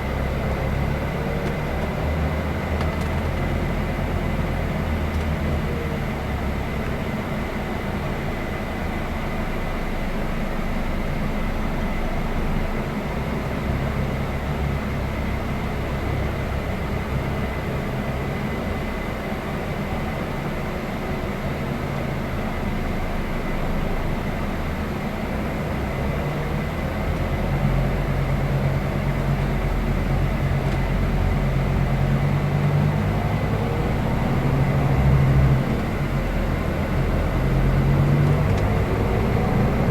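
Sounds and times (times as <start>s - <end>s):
coach diesel engine drone: 0.0s - 39.9s
road rumble: 0.0s - 39.9s.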